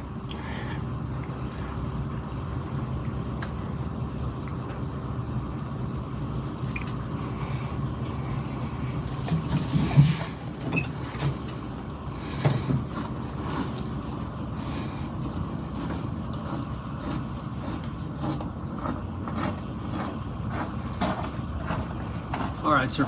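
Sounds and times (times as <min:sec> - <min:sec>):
truck engine idling: 0:00.0 - 0:23.0
knocks and rustles: 0:09.1 - 0:11.7.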